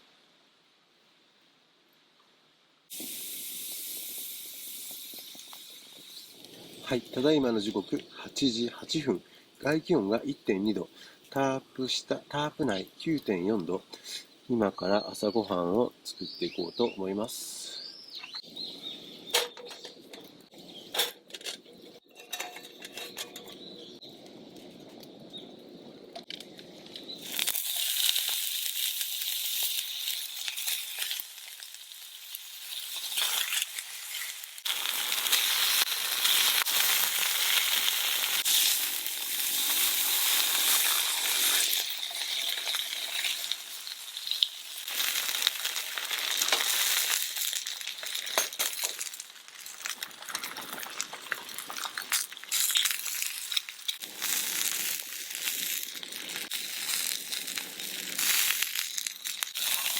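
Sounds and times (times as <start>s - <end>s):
food sizzling in a pan: 2.9s - 7.2s, 27.1s - 50.4s, 51.8s - 59.9s
cooking gear clicks and knocks: 20.9s - 23.8s.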